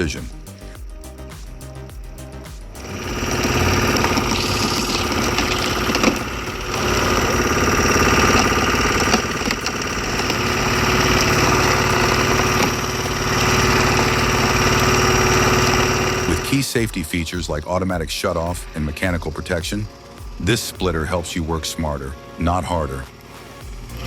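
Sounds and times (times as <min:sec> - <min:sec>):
log splitter engine running: 0:02.8 - 0:16.6.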